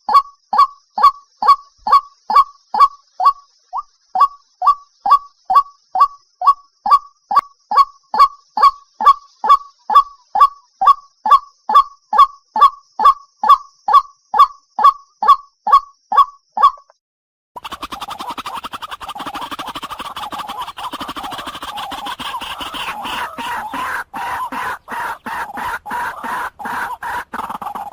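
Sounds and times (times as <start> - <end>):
waterhen calling short falling notes: 17.6 - 27.9.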